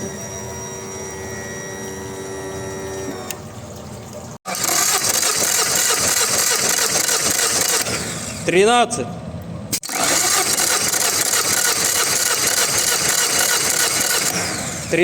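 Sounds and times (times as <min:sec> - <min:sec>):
outboard motor running loudly: 0:04.5 - 0:08.5, 0:09.9 - 0:15.0.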